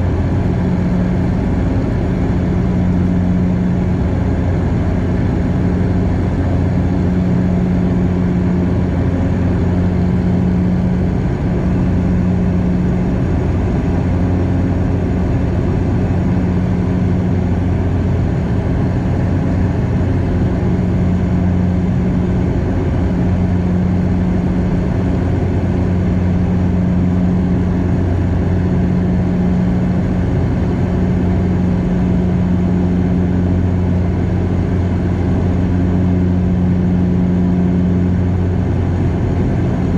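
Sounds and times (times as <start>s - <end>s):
propellers droning: 0.0s - 39.9s.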